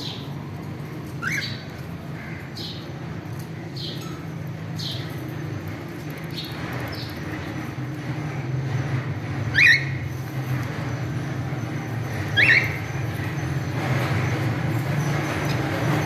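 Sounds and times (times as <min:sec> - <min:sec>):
cockatiels chirping: 0:01.2 - 0:01.6, 0:12.3 - 0:12.8.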